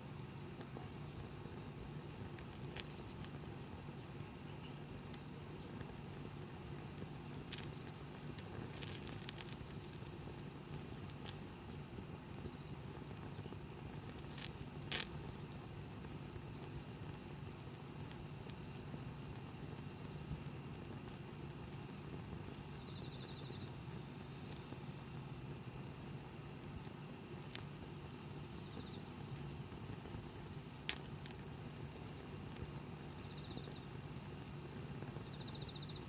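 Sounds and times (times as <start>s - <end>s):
insects chirping: 0.0s - 36.0s
campfire popping and crackling: 29.9s - 32.8s.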